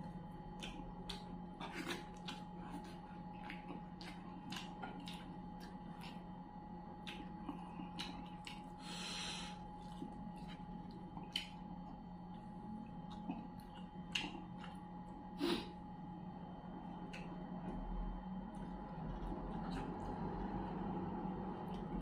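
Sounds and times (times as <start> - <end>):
faint steady hum: 0.0 - 22.0
wet chewing and lip-smacking: 0.4 - 15.3, 16.8 - 17.8, 18.4 - 22.0
breath through the nose: 8.8 - 9.6.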